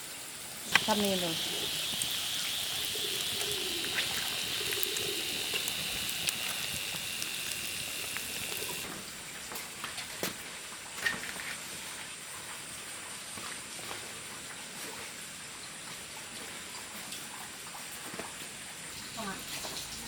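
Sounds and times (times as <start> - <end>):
steady hiss: 0.0 - 8.9.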